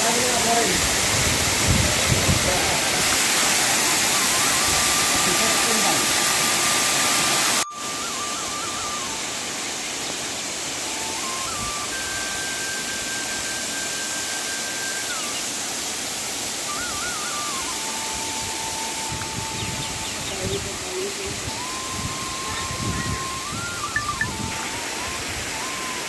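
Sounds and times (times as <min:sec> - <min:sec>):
waterfall rushing: 0:00.0 - 0:26.0
whistle-like melody: 0:03.5 - 0:06.0, 0:07.4 - 0:09.8, 0:10.7 - 0:15.6, 0:16.5 - 0:20.7, 0:21.3 - 0:26.0.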